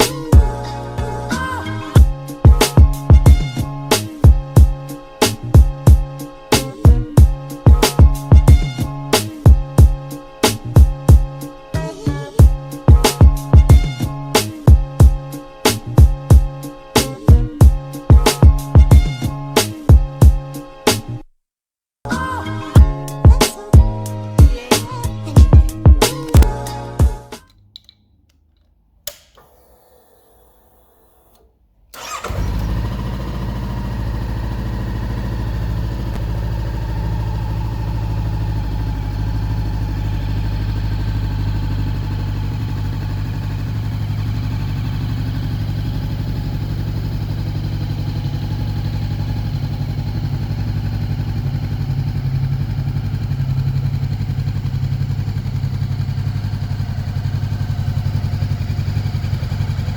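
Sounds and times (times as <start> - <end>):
motorcycle engine starting and idling: 0.0 - 9.9, 26.1 - 26.8, 27.5 - 59.9
click: 26.2 - 26.6, 27.4 - 32.4.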